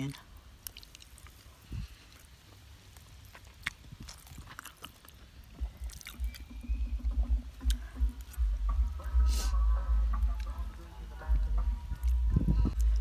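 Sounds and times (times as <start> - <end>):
person chewing: 0.1 - 9.3, 10.1 - 13.0
gusting rumble on microphone: 11.3 - 13.0.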